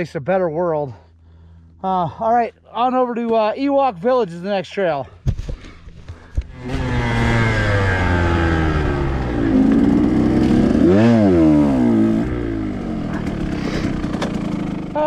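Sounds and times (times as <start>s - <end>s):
dirt bike engine revving: 6.5s - 15.0s.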